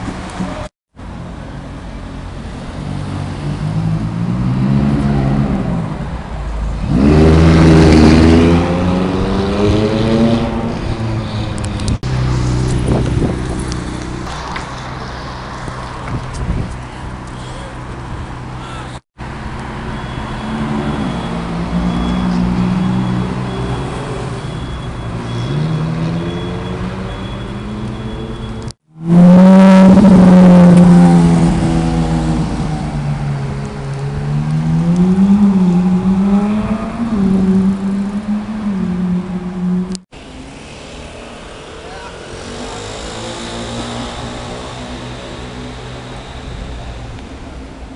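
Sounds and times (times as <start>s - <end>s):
car engine revving: 2.8s - 15.6s, 28.6s - 47.6s.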